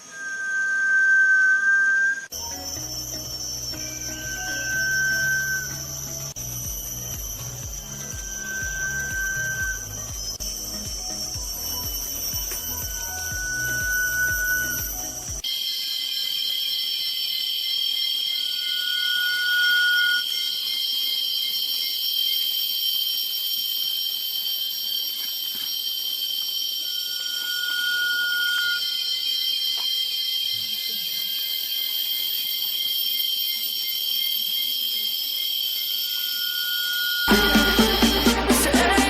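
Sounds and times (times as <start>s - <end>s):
long whistled bird note: 0.0s - 15.5s, 26.8s - 29.2s
high-pitched ringing chorus: 0.0s - 22.8s, 25.8s - 39.0s.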